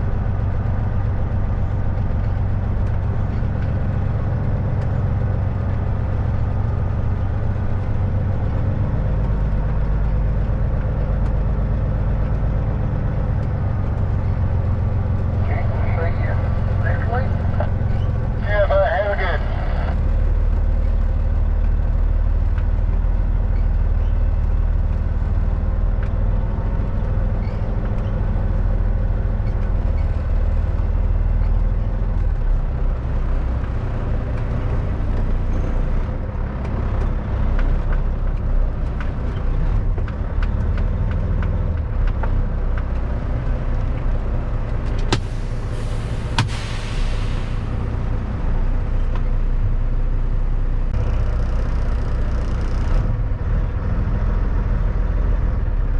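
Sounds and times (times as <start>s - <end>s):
truck diesel engine running: 0.0s - 55.9s
air hiss: 45.2s - 47.9s.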